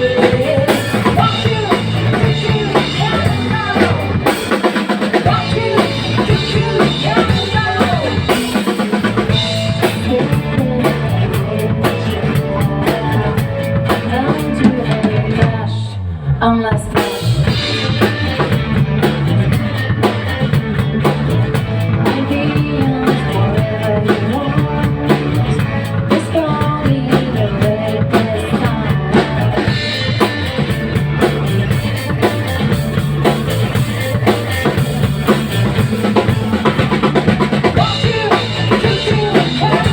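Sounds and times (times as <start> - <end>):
drum kit: 0.0 - 15.8, 16.7 - 39.9
person singing: 0.0 - 17.0, 22.0 - 30.0, 37.6 - 39.9
bass guitar: 0.0 - 39.9
electric guitar: 0.0 - 39.9.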